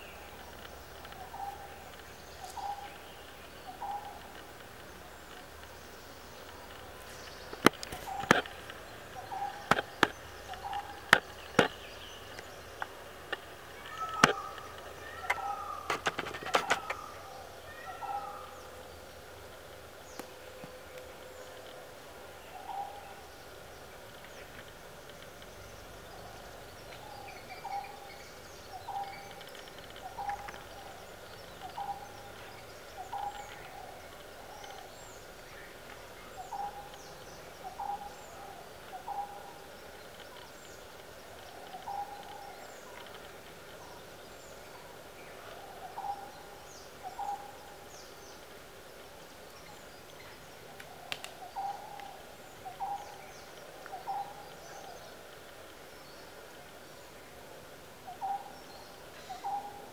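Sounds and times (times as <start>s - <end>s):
low bird call: 0.0s - 19.0s, 25.2s - 44.0s
natural background noise: 0.0s - 59.9s
high bird chirps: 6.8s - 18.5s.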